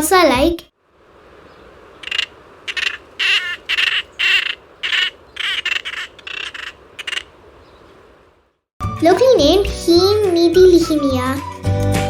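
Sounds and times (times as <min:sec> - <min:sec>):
steady background hiss: 0:00.0 - 0:08.6
bird harsh calls: 0:01.4 - 0:08.2.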